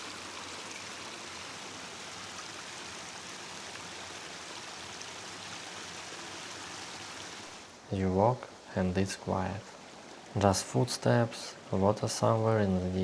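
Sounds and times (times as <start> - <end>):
river flowing: 0.0 - 7.8.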